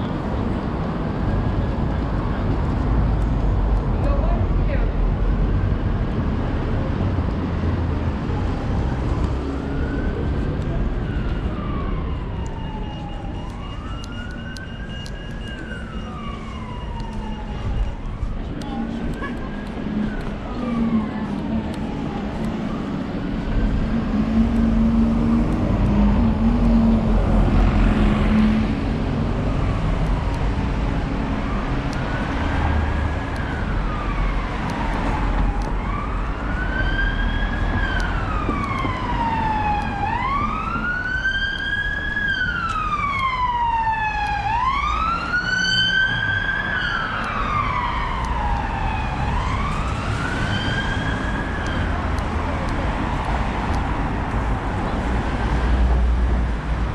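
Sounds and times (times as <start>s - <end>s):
road traffic rumble: 0.0s - 56.9s
emergency siren wailing: 6.8s - 56.9s.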